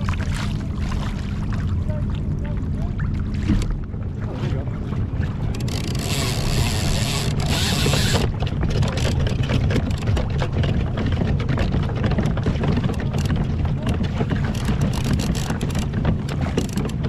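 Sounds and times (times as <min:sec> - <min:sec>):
wind and water rumble: 0:00.0 - 0:17.0
small clicks and knocks: 0:05.5 - 0:10.5, 0:11.6 - 0:17.0.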